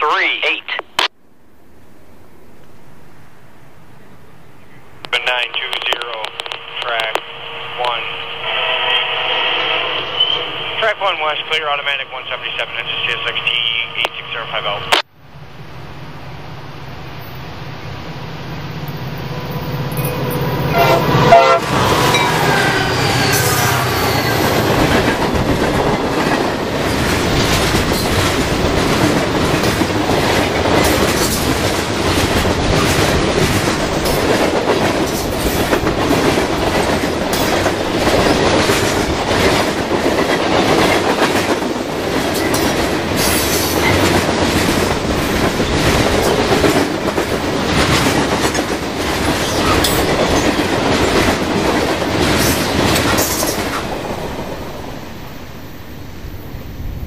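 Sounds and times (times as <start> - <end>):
train horn: 7.8 - 10.7, 19.5 - 24.6.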